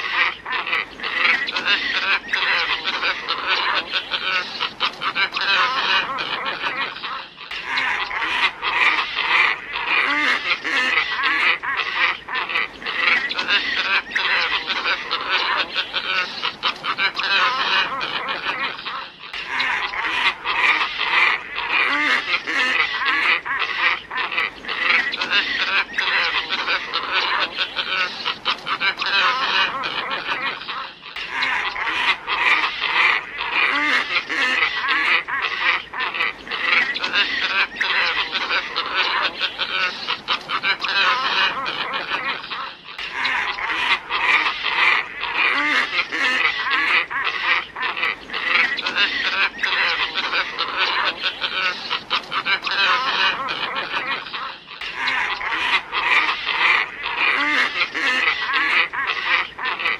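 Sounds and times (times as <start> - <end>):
flock of ibises calling: 0.0 - 59.9.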